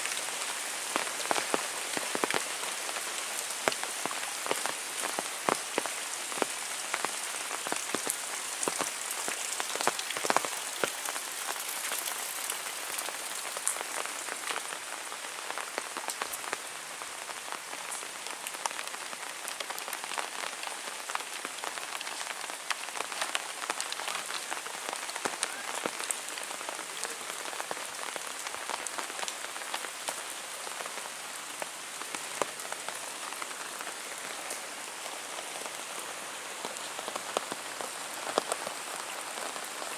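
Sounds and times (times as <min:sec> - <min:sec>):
heavy rain falling: 0:00.0 - 0:39.9
raindrops ticking on hard surface: 0:01.0 - 0:14.8.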